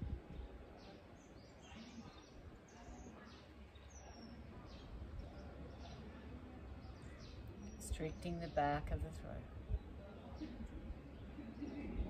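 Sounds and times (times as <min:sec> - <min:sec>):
outdoor background noise: 0:00.0 - 0:12.0
faint bird chirps: 0:00.3 - 0:08.6.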